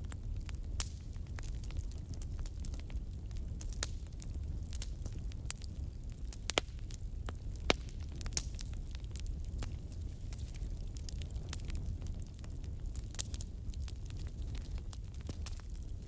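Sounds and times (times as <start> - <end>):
sharp pops of fire: 0.0 - 16.0
wood fire crackling: 0.0 - 16.0.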